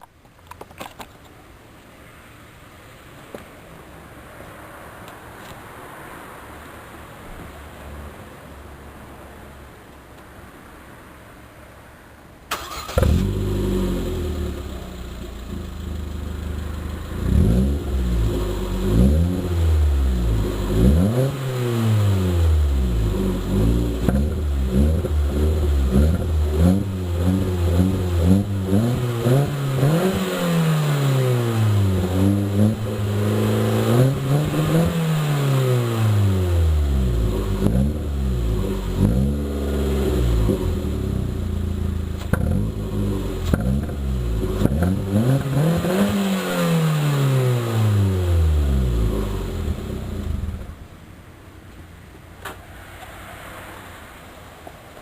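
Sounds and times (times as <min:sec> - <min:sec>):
car engine idling and revving: 0:12.5 - 0:55.0.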